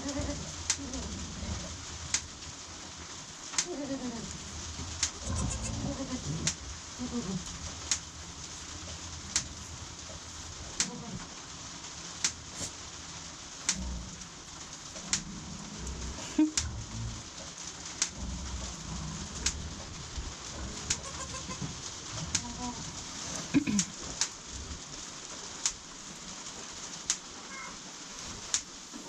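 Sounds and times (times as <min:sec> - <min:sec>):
rain hiss: 0:00.0 - 0:29.0
pigeons cooing: 0:03.6 - 0:07.5.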